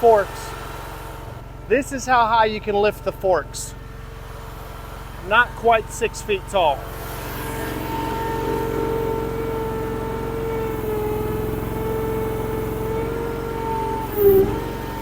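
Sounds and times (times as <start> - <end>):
skid steer engine whining: 0.0 - 15.0.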